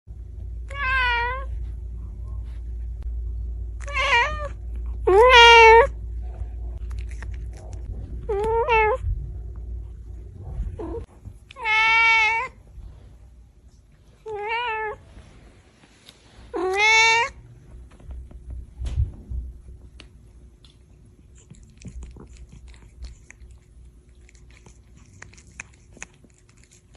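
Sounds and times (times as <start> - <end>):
cat meowing: 3.8 - 5.9, 11.6 - 12.6, 16.5 - 17.4.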